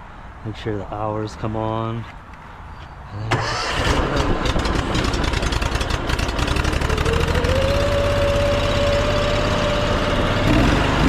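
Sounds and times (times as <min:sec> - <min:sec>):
gas engine running: 0:03.3 - 0:11.0.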